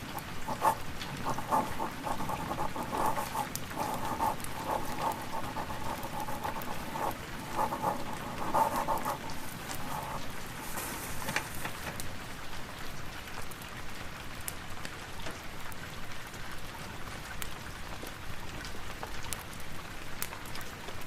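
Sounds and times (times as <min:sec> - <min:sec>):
pen scratching on paper: 0:00.0 - 0:11.4
fire crackling: 0:00.0 - 0:12.4
rain hiss: 0:00.0 - 0:21.0.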